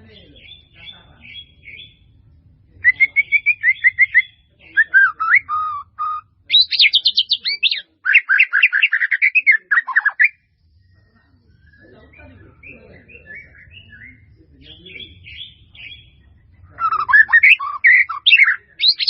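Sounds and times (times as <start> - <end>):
bird chirping and trilling: 0.0 - 19.0.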